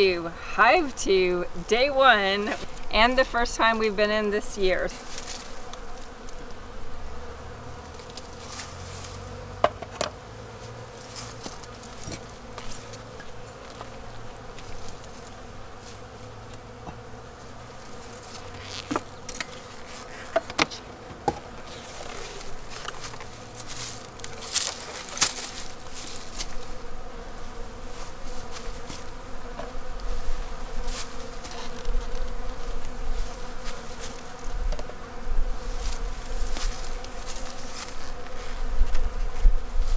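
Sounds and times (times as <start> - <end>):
honeybees buzzing: 0.0 - 39.9
clicks and knocks from hive: 5.0 - 6.6, 7.8 - 10.3, 10.9 - 15.4, 18.0 - 39.7.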